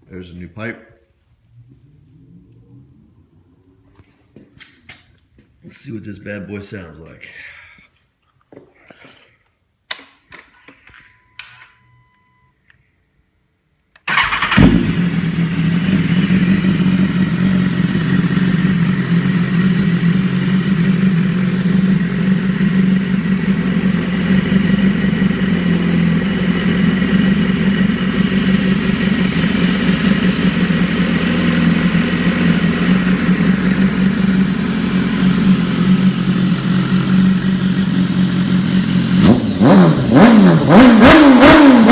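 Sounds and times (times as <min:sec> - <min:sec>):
motorcycle engine idling: 0:14.1 - 0:41.9.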